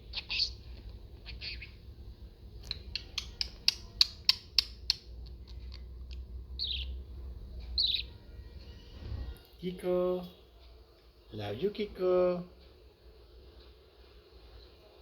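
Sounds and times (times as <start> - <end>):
budgie squawky chirps: 1.2 - 1.8.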